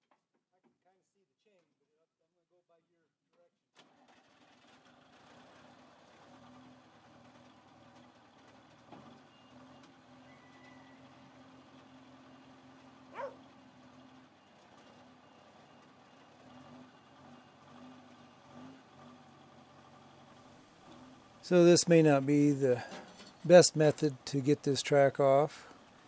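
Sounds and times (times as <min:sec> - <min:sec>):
heavy equipment engine idling: 0:04.9 - 0:26.0
dog barking: 0:13.1 - 0:13.4.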